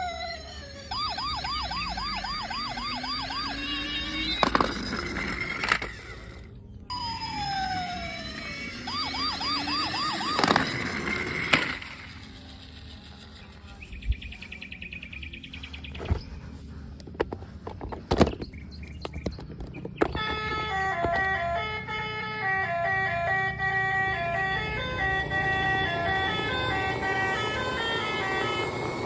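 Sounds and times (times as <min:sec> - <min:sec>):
toy police siren wailing: 0:00.0 - 0:13.6, 0:20.0 - 0:29.0
fast rattling electronic pattern: 0:10.9 - 0:14.0.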